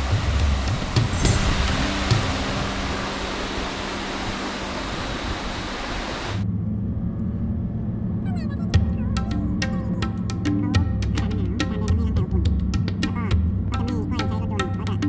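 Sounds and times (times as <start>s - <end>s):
background music with bass line: 0.0s - 5.0s, 8.8s - 15.0s
steady rushing noise: 0.0s - 7.0s.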